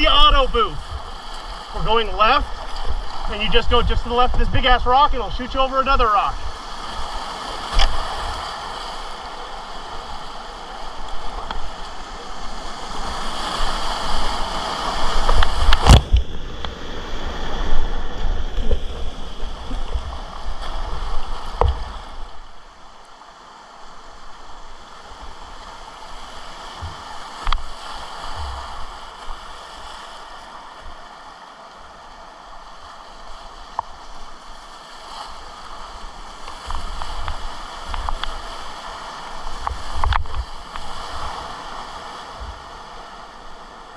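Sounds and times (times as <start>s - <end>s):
river rapids rushing and splashing: 0.0s - 43.9s.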